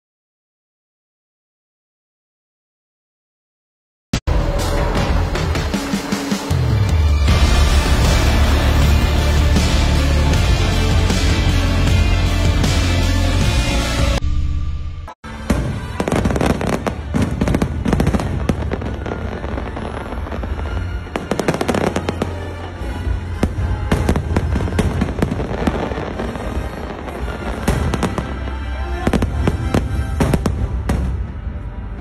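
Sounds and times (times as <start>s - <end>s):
music playing: 4.3s - 32.0s
fireworks bangs: 15.3s - 31.4s.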